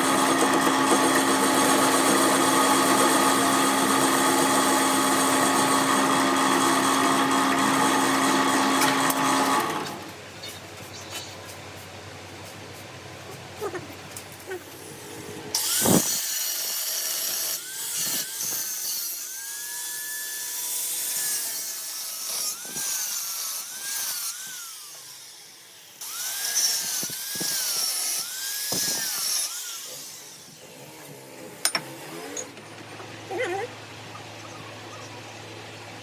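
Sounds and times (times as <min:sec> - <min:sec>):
power tool working metal: 0:00.0 - 0:10.1, 0:14.4 - 0:32.6.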